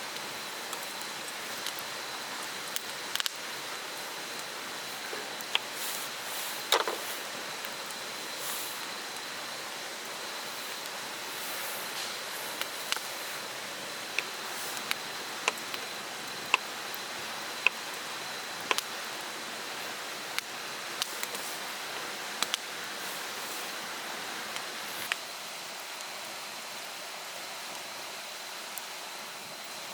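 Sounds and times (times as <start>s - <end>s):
sharp ticks: 18.7s - 18.9s.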